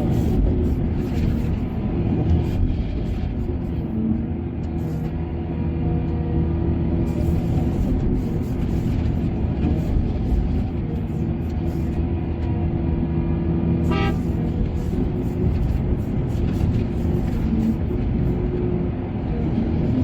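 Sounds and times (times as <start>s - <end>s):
heavy diesel machinery running: 0.0s - 20.0s
short horn toot: 13.8s - 14.3s.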